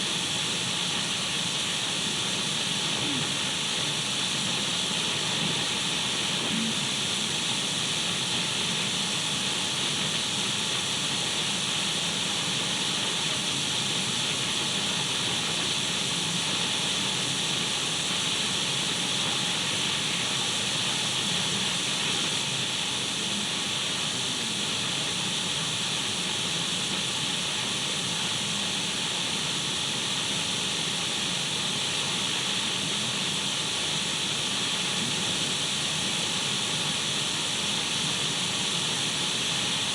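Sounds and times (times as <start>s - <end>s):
radio static hiss: 2.7s - 8.0s, 19.3s - 25.6s, 34.6s - 35.7s.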